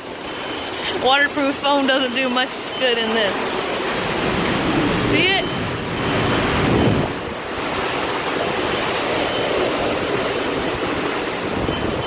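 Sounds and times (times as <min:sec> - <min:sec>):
driving rain: 0:00.0 - 0:12.0
hurricane wind: 0:00.0 - 0:12.0.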